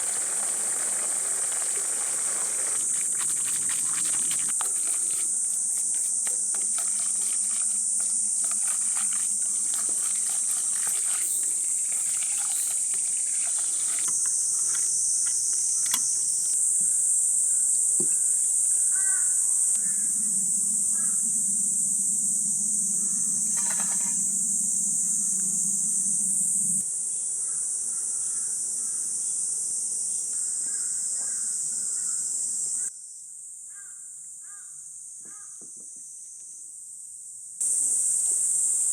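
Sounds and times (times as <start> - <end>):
faint chirps: 0.0 - 29.4
insects droning: 0.0 - 38.9
low hum: 19.1 - 26.8.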